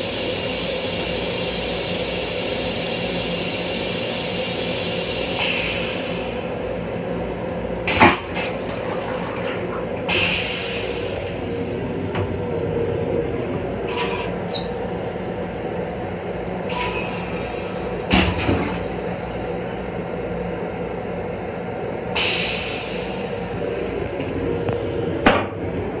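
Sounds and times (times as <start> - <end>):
electric train rumble and hum: 0.0 - 26.0
air hiss: 0.8 - 6.6, 10.1 - 11.7, 22.2 - 23.6.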